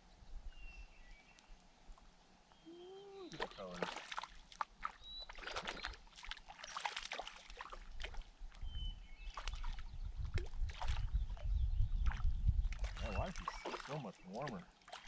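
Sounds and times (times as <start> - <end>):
water splashing and sloshing: 3.3 - 15.0.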